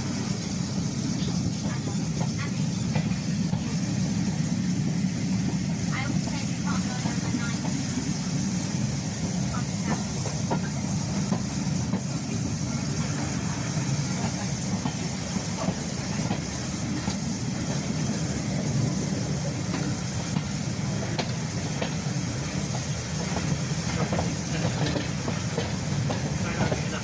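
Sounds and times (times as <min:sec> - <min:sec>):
high hiss: 0:00.0 - 0:27.0
train wheels rumbling: 0:00.0 - 0:27.0
wheels clicking over rail joints: 0:09.1 - 0:27.0.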